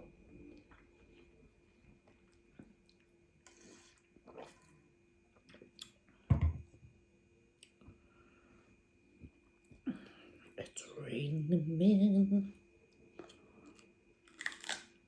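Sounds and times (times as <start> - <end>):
person chewing: 13.2 - 15.0.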